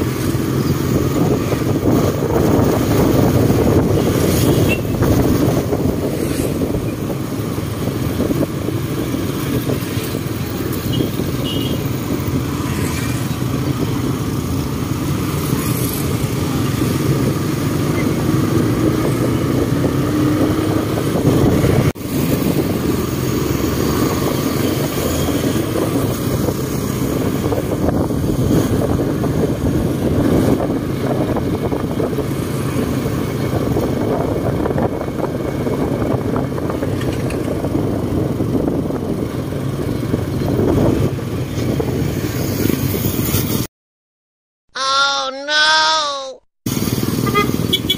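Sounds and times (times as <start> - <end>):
motorcycle engines running: 0.0 - 43.6, 46.7 - 47.9
road noise: 0.0 - 43.7, 44.8 - 47.9
wind rush: 0.0 - 43.7.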